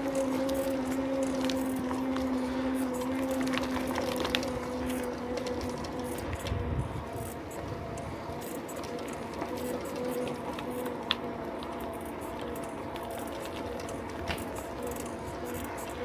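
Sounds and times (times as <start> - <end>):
bicycle whirring hum: 0.0 - 16.0.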